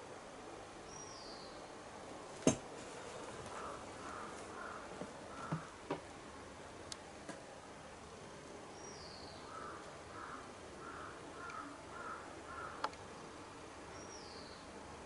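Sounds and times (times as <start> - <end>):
faint bird calls: 3.4 - 5.8, 8.7 - 12.9
high falling bird chirp: 8.7 - 9.8, 13.9 - 14.7.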